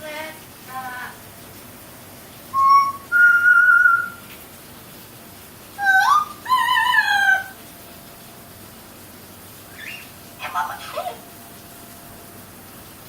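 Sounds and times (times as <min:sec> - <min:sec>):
parrot whistling: 0:02.5 - 0:04.2, 0:05.8 - 0:07.6, 0:09.7 - 0:11.0.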